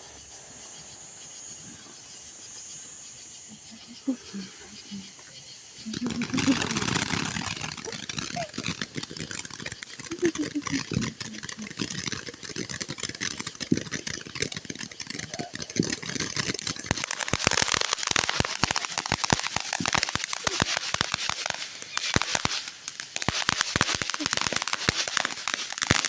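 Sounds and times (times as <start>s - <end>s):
firework hiss: 0.0s - 26.0s
firework crackling and popping: 5.8s - 26.0s.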